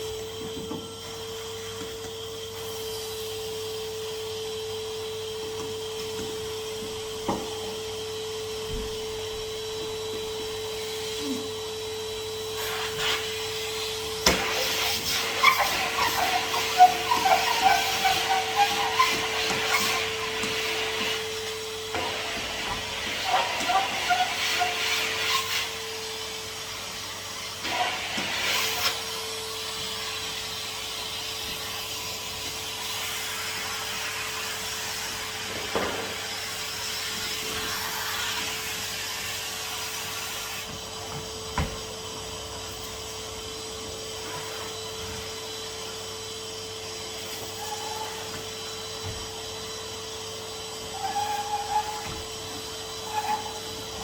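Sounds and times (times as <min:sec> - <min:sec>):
vacuum cleaner motor whine: 0:00.0 - 0:54.0
nozzle rubbing over surfaces: 0:12.6 - 0:26.0.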